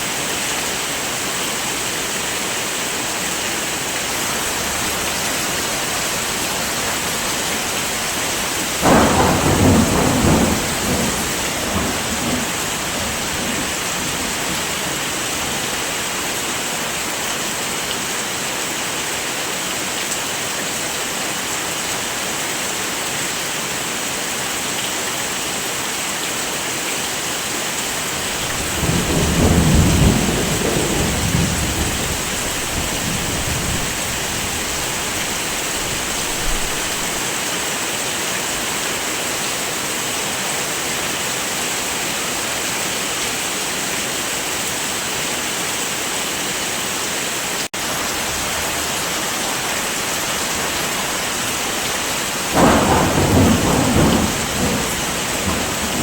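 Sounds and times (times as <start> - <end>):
heavy rain: 0.0 - 56.0
thunder rumbling: 4.0 - 15.8, 28.2 - 37.2, 50.4 - 56.0.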